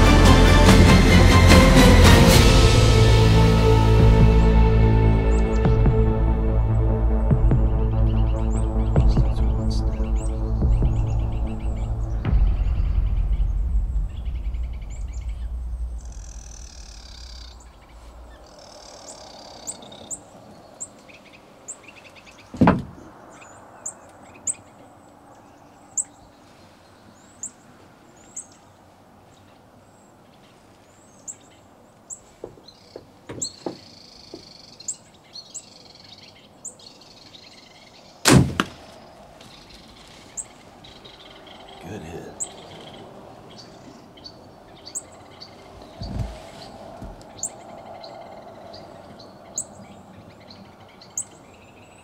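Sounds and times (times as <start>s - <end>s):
background music: 0.0s - 17.3s
small birds chirping: 4.5s - 52.0s
sharp loud thumps: 10.6s - 17.9s, 22.6s - 23.0s, 38.3s - 39.0s.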